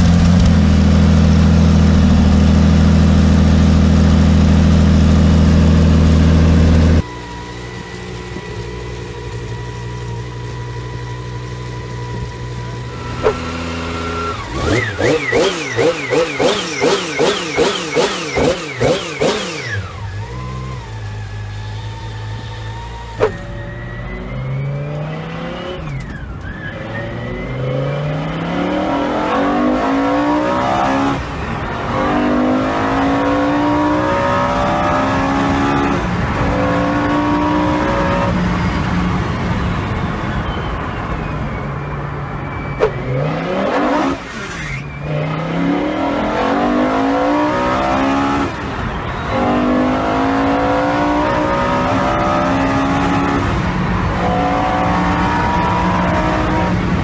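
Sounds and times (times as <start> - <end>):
engine accelerating through gears: 0.0 - 41.7, 42.5 - 57.0.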